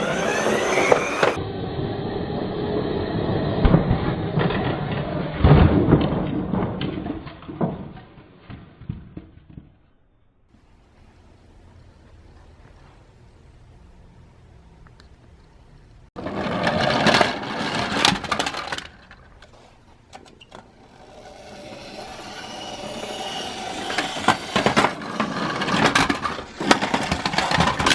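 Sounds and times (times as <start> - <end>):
toy cars rattling on track: 0.0 - 1.4, 16.2 - 27.9.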